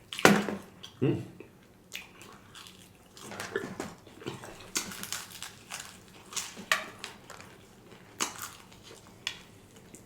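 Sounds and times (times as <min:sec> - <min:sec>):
crunching fried chicken: 0:02.0 - 0:10.0.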